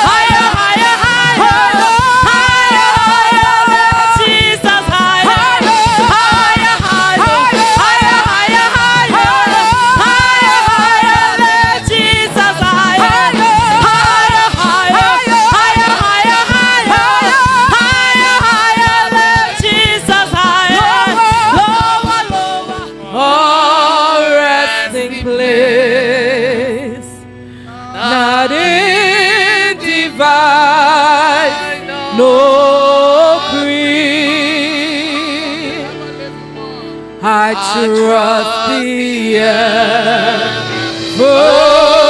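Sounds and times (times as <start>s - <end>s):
band with drum beat: 0.0s - 23.7s, 39.5s - 42.0s
gospel singing with vibrato: 0.0s - 42.0s.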